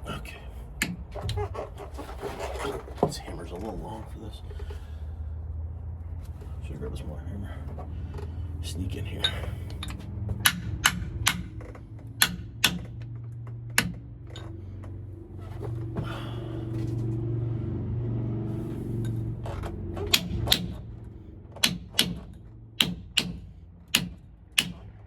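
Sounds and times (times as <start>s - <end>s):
hammer tapping on metal: 9.8s - 14.1s, 20.0s - 20.9s, 21.6s - 25.0s.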